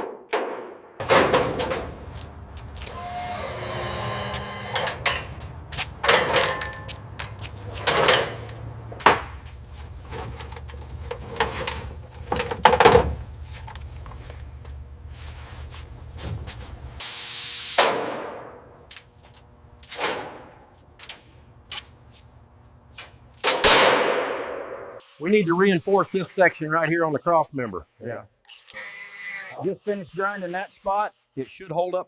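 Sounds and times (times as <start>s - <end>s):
knocks and clunks: 0.0s - 3.4s, 4.3s - 9.5s, 10.1s - 13.2s
steady low hum: 1.0s - 17.0s
whirring motor: 2.8s - 5.1s, 28.5s - 30.0s.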